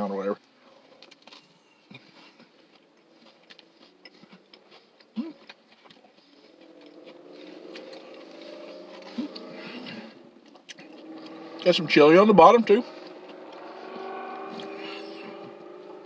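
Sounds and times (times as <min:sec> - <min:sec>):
person chewing: 0:00.8 - 0:09.7.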